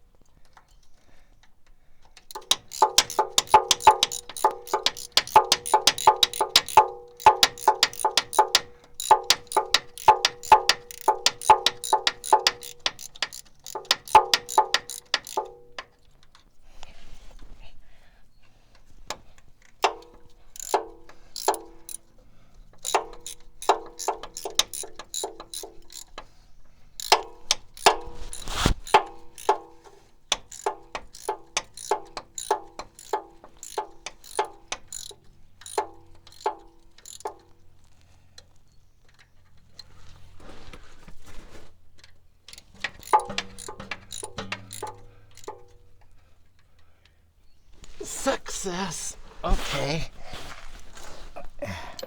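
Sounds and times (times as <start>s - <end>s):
socket ratchet clicking: 2.2s - 15.9s, 19.8s - 22.1s, 22.8s - 26.3s, 27.0s - 29.7s, 30.3s - 37.4s, 42.5s - 45.8s.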